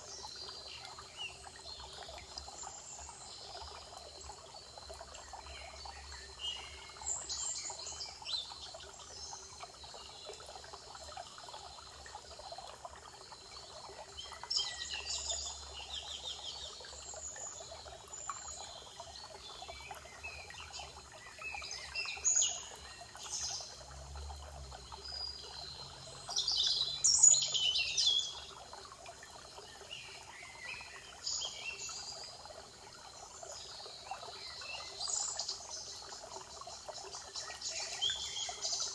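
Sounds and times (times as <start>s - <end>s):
birds singing: 25.1s - 28.5s.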